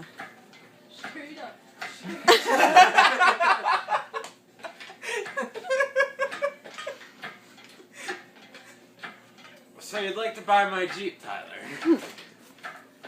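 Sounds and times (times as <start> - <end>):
person laughing: 2.1 - 7.0, 11.6 - 12.1.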